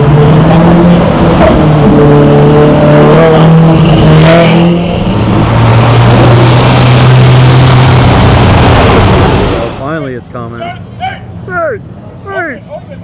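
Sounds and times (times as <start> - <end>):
performance car engine revving: 0.0 - 9.8.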